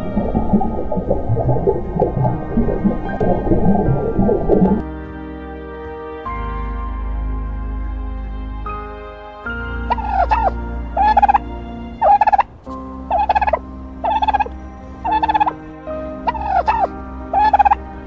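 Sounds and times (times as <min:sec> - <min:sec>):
soft background music: 0:00.0 - 0:18.0
large fowl calling: 0:09.9 - 0:12.5, 0:13.1 - 0:17.9.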